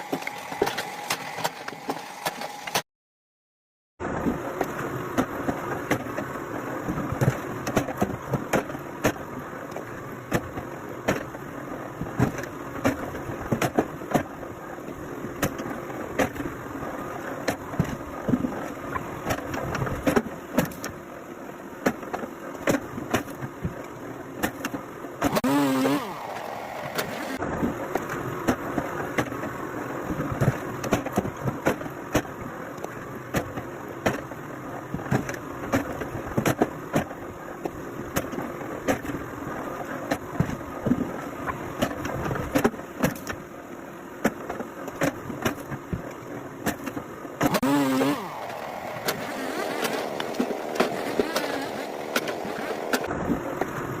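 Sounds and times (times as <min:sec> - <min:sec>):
engine running: 0:25.2 - 0:29.0, 0:47.4 - 0:54.0.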